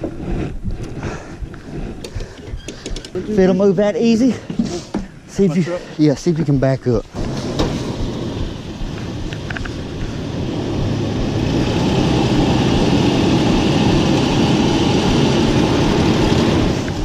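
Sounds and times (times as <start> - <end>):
truck engine revving: 7.1 - 17.0.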